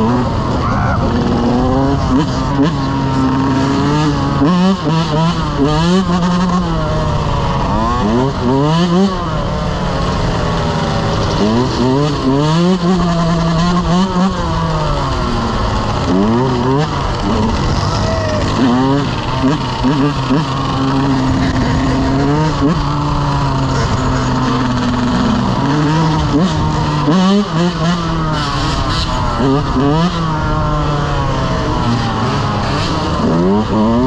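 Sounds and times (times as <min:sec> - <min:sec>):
dirt bike engines revving: 0:00.0 - 0:34.0.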